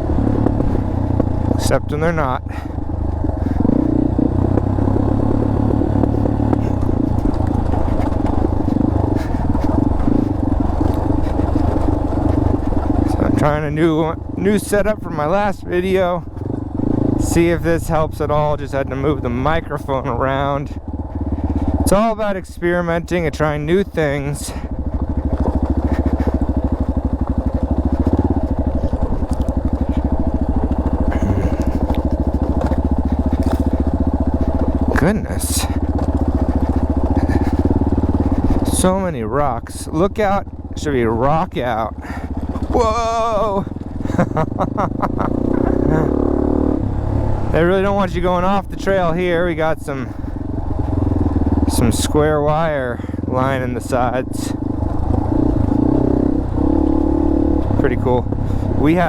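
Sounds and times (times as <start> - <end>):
bike clattering over rough ground: 0.0 - 1.7, 2.4 - 15.0, 23.0 - 39.0, 39.6 - 44.4
stones clicking under tyres: 0.0 - 1.8, 2.7 - 14.0, 24.2 - 39.0, 39.9 - 46.5, 50.2 - 51.7, 54.6 - 59.0
dirt bike engine at low revs: 0.0 - 59.0.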